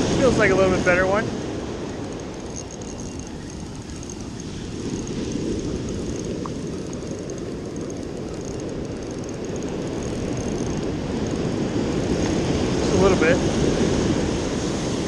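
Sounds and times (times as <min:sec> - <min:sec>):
surf on beach: 0:00.0 - 0:02.2, 0:10.6 - 0:15.0
wind: 0:00.0 - 0:15.0.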